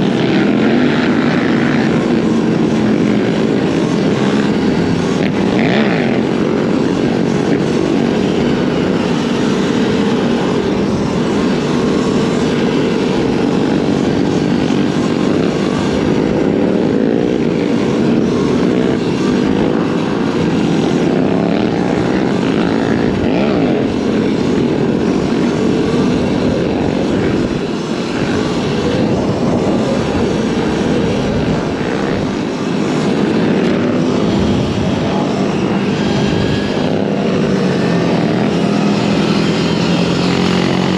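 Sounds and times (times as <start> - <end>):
dirt bike engine drone: 0.0 - 40.9
rushing noise: 0.0 - 40.9.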